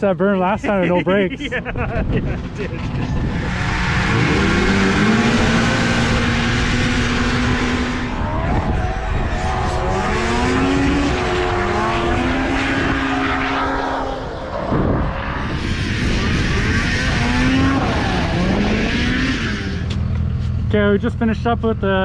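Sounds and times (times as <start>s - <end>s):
snowmobile engines racing: 0.0s - 20.2s.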